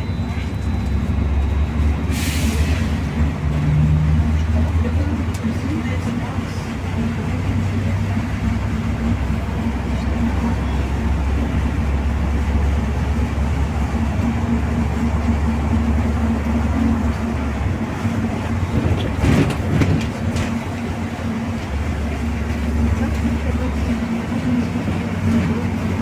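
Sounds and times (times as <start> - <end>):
bus engine and road rumble: 0.0 - 26.0
knocks and rattles: 18.4 - 20.8.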